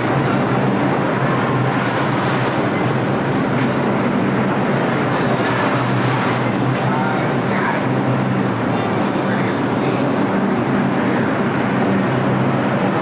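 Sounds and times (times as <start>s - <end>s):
subway train rumble: 0.0s - 13.0s
high wheel squeal: 3.6s - 7.3s.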